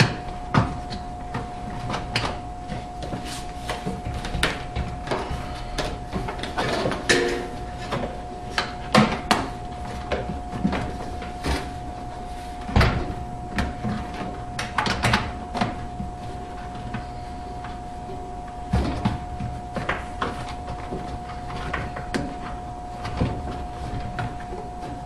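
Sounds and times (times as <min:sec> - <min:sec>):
faint steady tone: 0:06.6 - 0:09.2.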